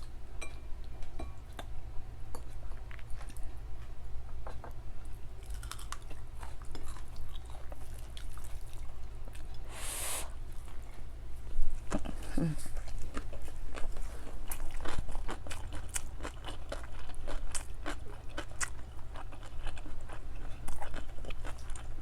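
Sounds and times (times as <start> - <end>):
chewing and mouth smacking: 5.4 - 9.6, 11.8 - 22.0.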